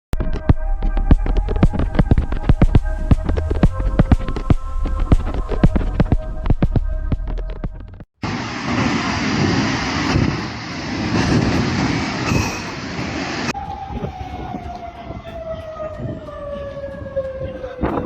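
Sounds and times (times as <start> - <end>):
loud rattling rumble: 0.1 - 17.4
siren wailing falling in pitch: 0.2 - 8.0, 13.4 - 18.0.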